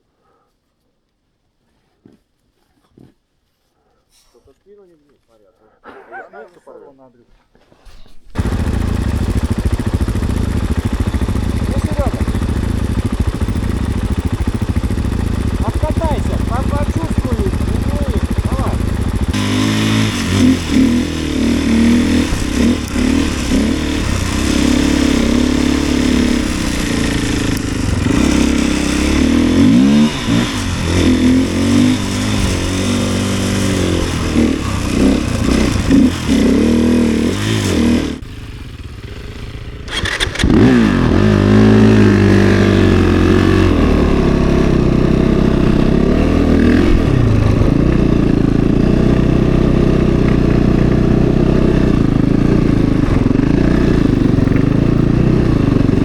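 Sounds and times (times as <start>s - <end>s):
snowbike engine revving: 8.3s - 56.0s.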